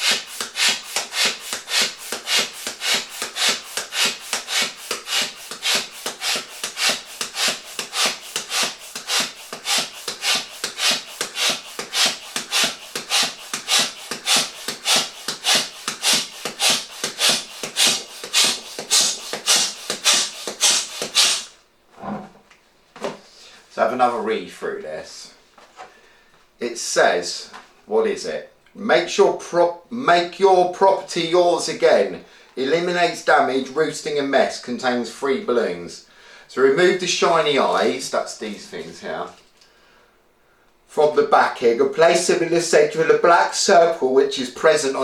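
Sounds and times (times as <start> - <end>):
hand pump strokes: 0.0 - 21.6.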